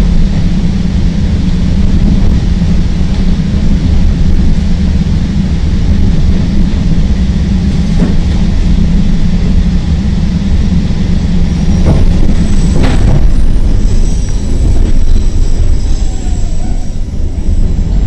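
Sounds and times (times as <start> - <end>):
elevated train rumbling: 0.0 - 18.0
wheels clacking over rail joints: 11.7 - 16.8.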